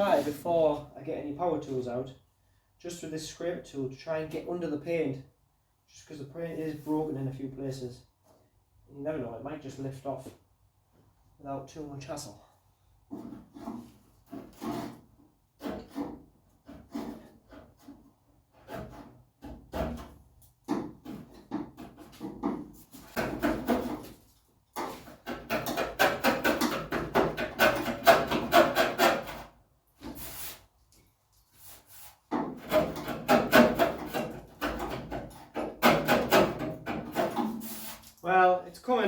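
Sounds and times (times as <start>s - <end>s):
scraper rasping on metal panel: 13.1s - 20.0s, 21.0s - 24.2s, 24.8s - 30.6s, 31.6s - 38.1s.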